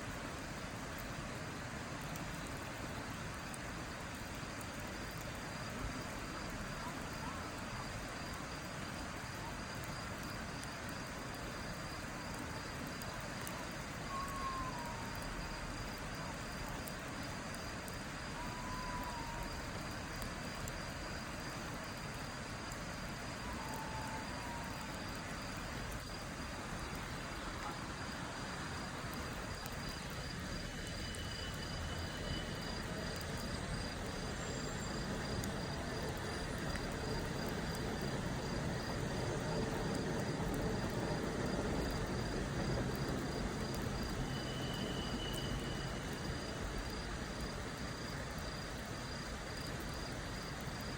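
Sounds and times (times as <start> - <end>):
constant rushing hiss: 0.0 - 50.9
crickets trilling: 0.0 - 50.9.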